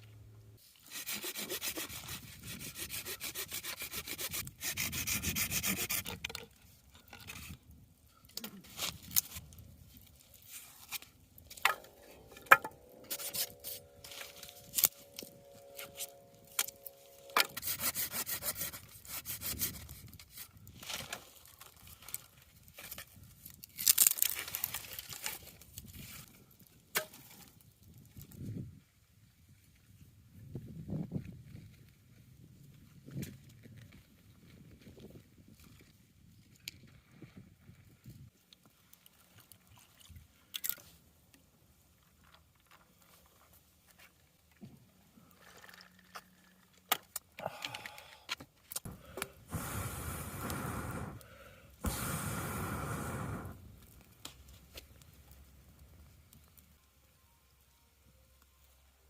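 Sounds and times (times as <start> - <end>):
rubbing and scraping noises: 0.6 - 7.6, 8.5 - 21.0.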